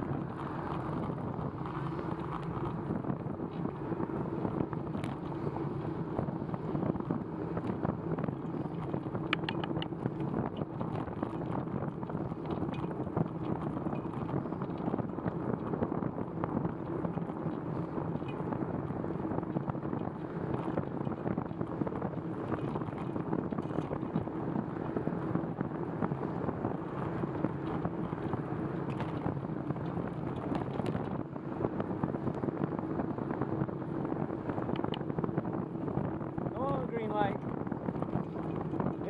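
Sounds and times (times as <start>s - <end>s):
bicycle tyres on wet pavement: 0.0s - 39.0s
wind noise on microphone: 0.0s - 39.0s
faint clicks and rattles: 6.9s - 15.8s, 27.3s - 31.2s.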